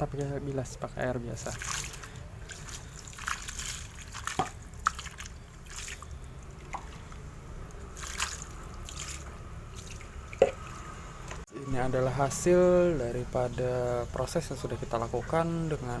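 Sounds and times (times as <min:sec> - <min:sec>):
water dripping and splashing: 0:01.2 - 0:11.5.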